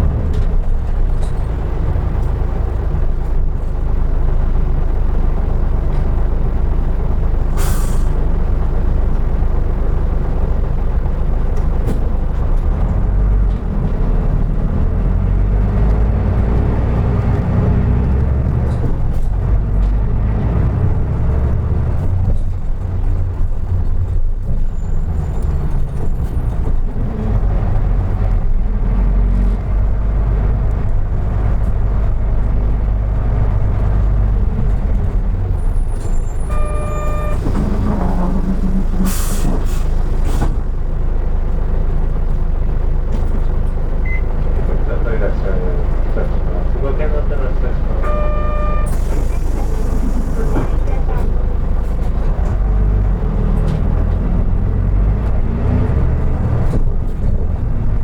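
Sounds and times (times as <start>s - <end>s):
bus diesel engine rumble: 0.0s - 58.0s
short electronic beep: 36.5s - 37.4s, 48.0s - 49.0s.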